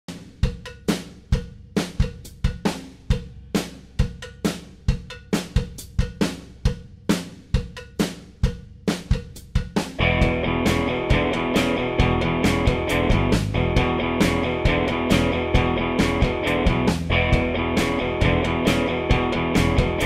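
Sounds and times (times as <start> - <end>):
drum kit beat: 0.1 - 20.0
band music: 10.0 - 20.0.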